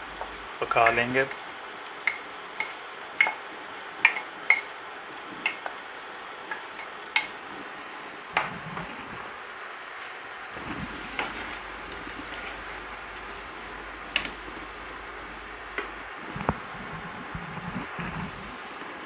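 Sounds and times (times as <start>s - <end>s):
utensil scraping pot: 10.6s - 16.6s.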